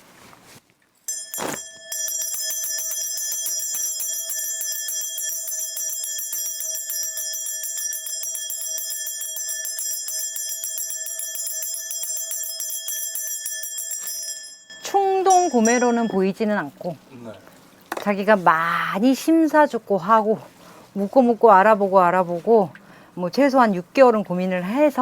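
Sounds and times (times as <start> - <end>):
hand bells jangling: 1.1 - 14.6.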